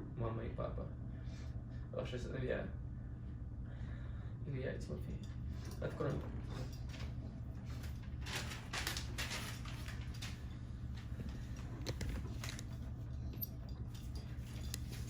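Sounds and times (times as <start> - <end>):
steady low hum: 0.0 - 15.0
rustling and handling noises: 5.1 - 15.0.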